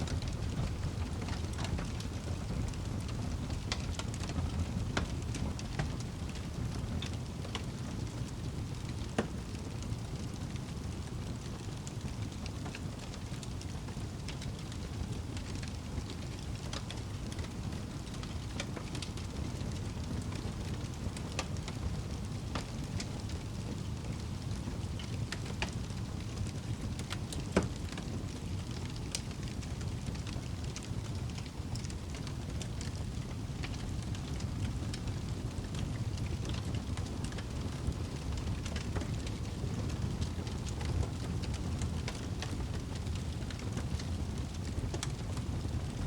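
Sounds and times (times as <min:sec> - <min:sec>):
fire crackles and pops: 0:00.0 - 0:46.0
wood fire rumbling: 0:00.0 - 0:46.0.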